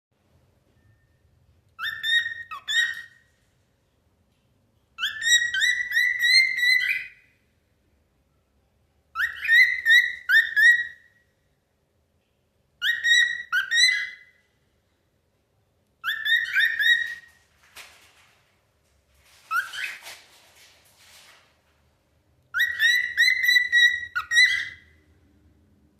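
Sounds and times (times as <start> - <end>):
cockatiel whistling: 1.8 - 3.2, 5.0 - 7.3, 9.2 - 11.2, 12.8 - 14.4, 16.0 - 17.3, 19.5 - 20.0, 22.5 - 24.9.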